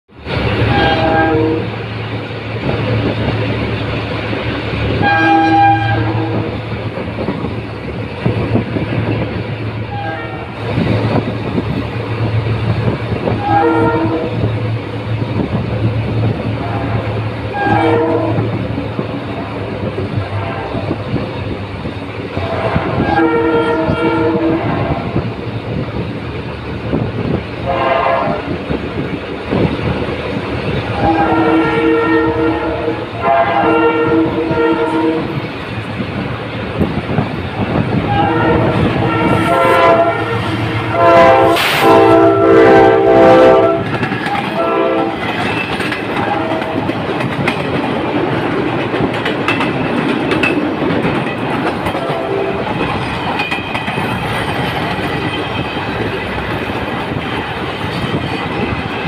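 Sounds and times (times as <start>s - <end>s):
diesel train engine drone: 0.1s - 59.0s
train wheel noise: 0.1s - 59.0s
multi-tone locomotive horn blasts: 0.6s - 2.0s, 4.9s - 6.7s, 9.8s - 11.2s, 12.8s - 14.6s, 16.5s - 18.6s, 19.4s - 21.1s, 22.3s - 25.3s, 27.6s - 28.7s, 30.8s - 35.4s, 37.7s - 47.2s, 51.8s - 52.8s.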